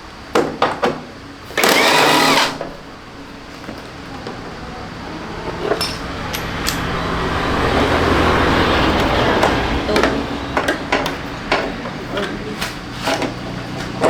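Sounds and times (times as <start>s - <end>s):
mechanical hum: 0.0s - 14.0s
metal clinks: 5.7s - 7.0s.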